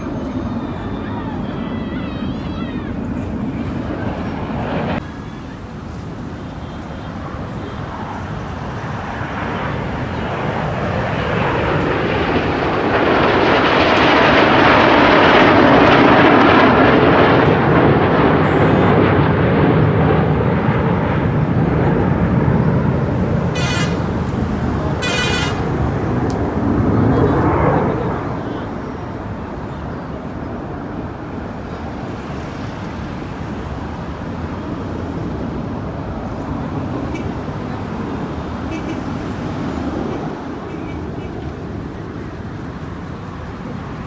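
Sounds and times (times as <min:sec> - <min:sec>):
jet aircraft roaring past: 0:00.0 - 0:44.0
short high-pitched toots: 0:23.5 - 0:24.3, 0:25.0 - 0:25.8.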